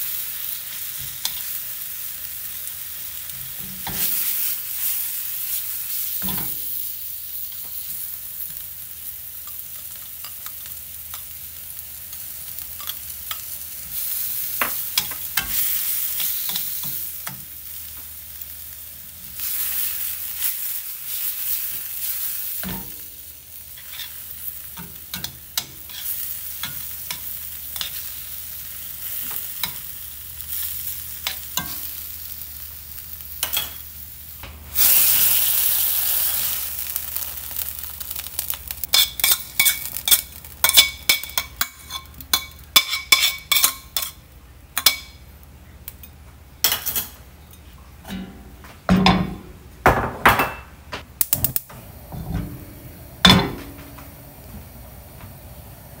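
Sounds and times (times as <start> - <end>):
meat and onions sizzling: 0.0 - 45.4
metal tongs scraping a pan: 12.6 - 17.4, 23.7 - 28.3, 30.5 - 32.0, 33.4 - 33.8, 38.2 - 44.2.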